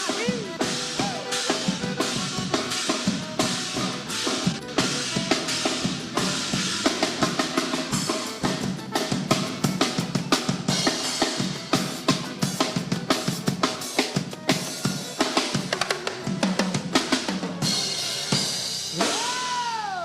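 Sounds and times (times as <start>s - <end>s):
drum kit beat: 0.0s - 20.0s
live band playing: 0.0s - 20.0s.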